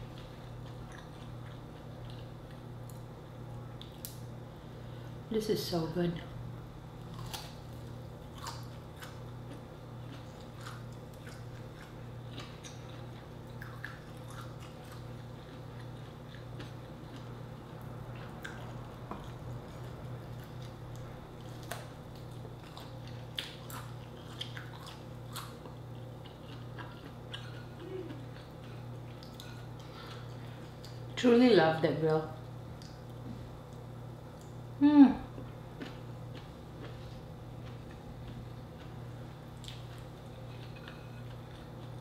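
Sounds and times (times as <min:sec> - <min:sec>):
steady low hum: 0:00.0 - 0:42.0
person chewing wet smacks: 0:00.2 - 0:03.0, 0:07.0 - 0:31.2, 0:35.4 - 0:42.0.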